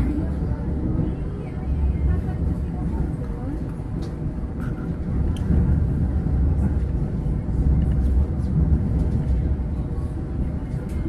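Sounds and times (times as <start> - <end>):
train rumbling on board: 0.0 - 11.0.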